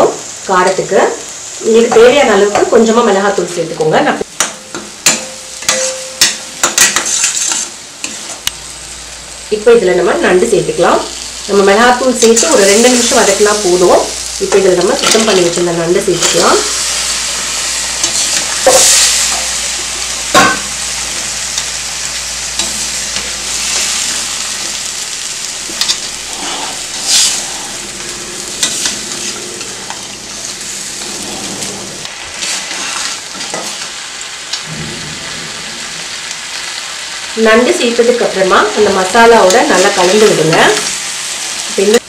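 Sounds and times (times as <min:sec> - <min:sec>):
food sizzling in hot oil: 0:00.0 - 0:42.0
spatula knocking and scraping pan: 0:04.4 - 0:08.4.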